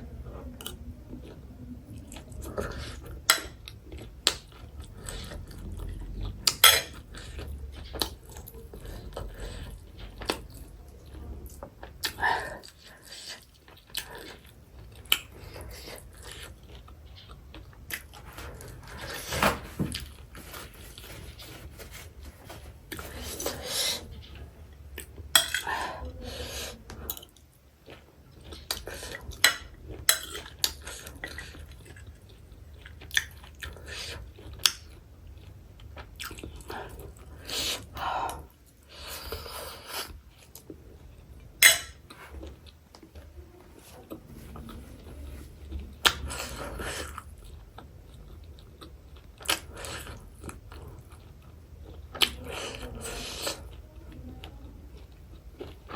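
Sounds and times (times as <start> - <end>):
chewing and crunching food: 0.0 - 55.9
cutlery clinking on dishes: 6.5 - 7.0, 25.4 - 25.8, 29.4 - 30.6, 41.6 - 42.0.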